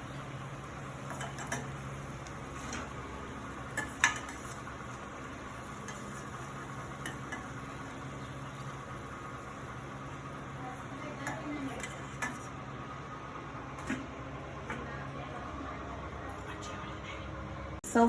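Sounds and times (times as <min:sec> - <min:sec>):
food sizzling in hot oil: 0:00.0 - 0:13.1.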